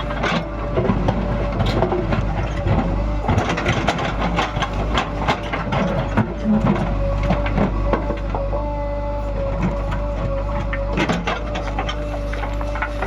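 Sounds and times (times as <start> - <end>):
knocks and clatters: 0.0 - 8.5
diesel engine running: 0.0 - 13.0.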